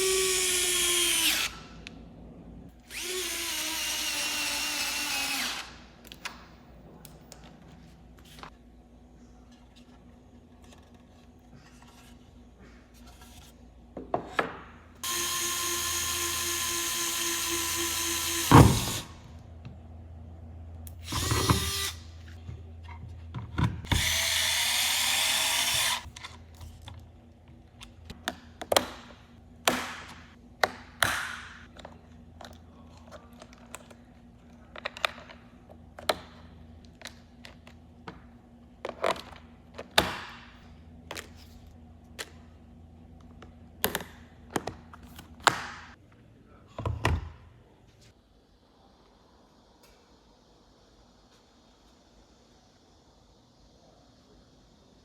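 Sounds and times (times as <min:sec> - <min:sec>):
electric screwdriver motor running: 0:02.9 - 0:05.6, 0:15.0 - 0:19.1, 0:23.9 - 0:26.1.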